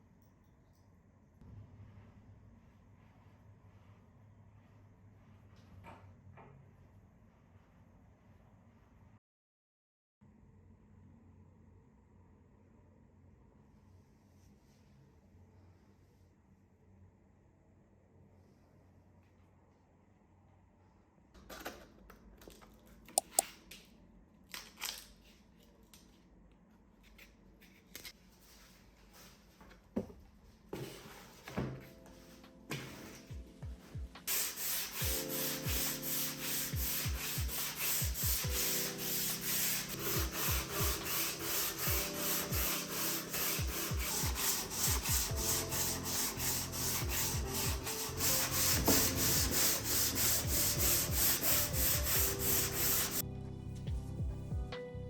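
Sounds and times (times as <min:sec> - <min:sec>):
wood sanding rasp: 0:34.3 - 0:53.2.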